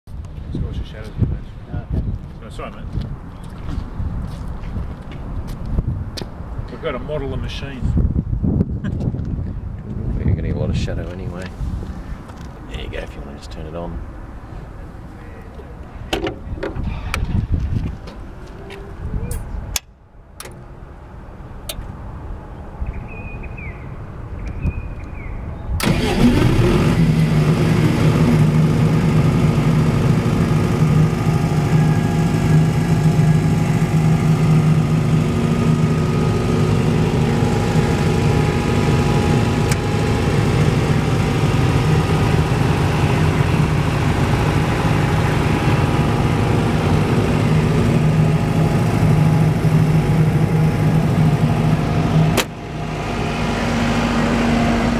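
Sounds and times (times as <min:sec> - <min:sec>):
diesel generator running: 0:25.8 - 0:54.9.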